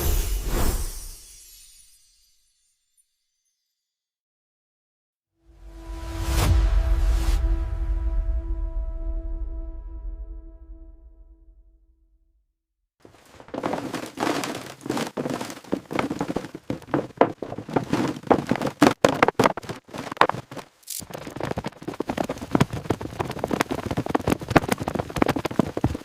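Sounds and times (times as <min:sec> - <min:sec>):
debris and brush crackling: 0:13.1 - 0:26.0.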